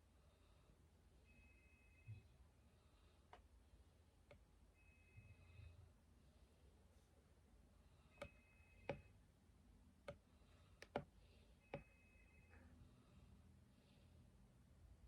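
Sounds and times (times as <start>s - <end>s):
faint thin high tone: 1.2s - 2.4s, 4.8s - 5.8s.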